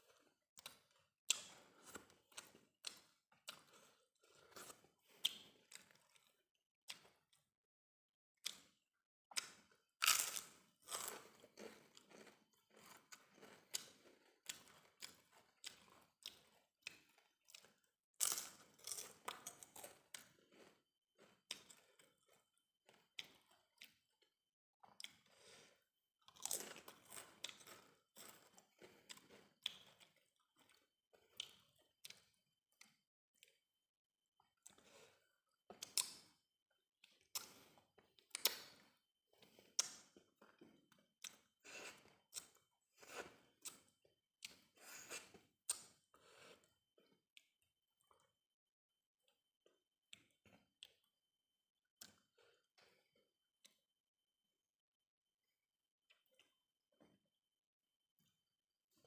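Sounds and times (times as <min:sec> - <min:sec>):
crunching crisp cracker: 0:09.4 - 0:21.9.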